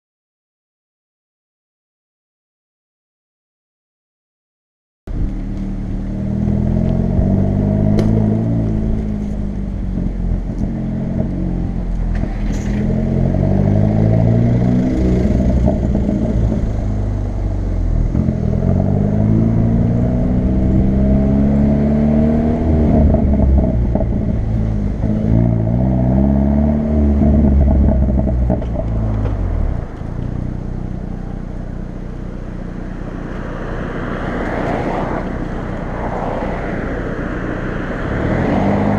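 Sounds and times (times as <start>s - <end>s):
exhaust crackles and pops: 5.1s - 13.0s, 27.2s - 30.4s
car engine revving: 5.2s - 38.9s.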